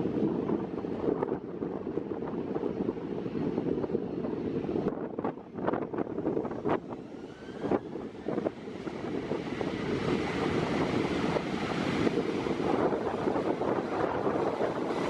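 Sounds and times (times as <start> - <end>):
jet engines rushing: 5.6 - 15.0.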